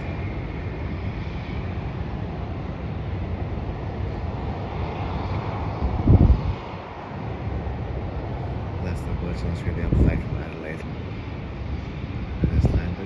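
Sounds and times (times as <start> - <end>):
jet landing rumble: 0.0 - 13.0.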